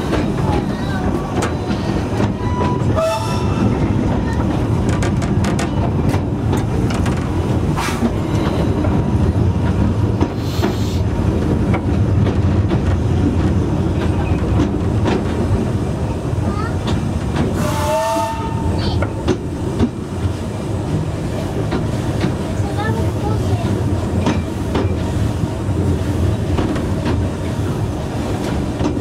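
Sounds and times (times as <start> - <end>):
railway coach rumble: 0.0 - 29.0.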